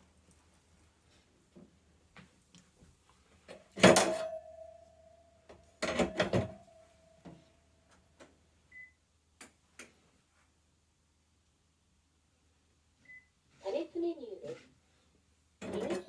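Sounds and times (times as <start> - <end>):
metal kitchenware clanking: 3.8 - 4.4.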